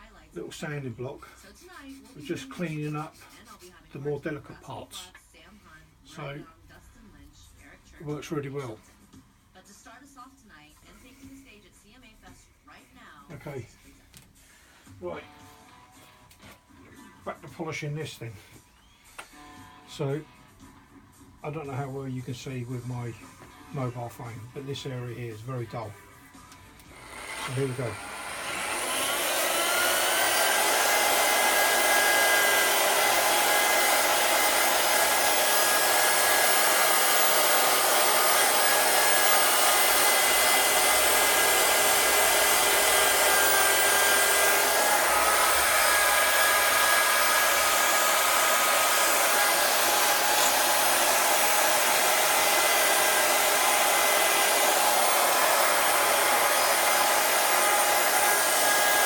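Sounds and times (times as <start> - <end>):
electric drill motor whine: 26.8 - 59.0.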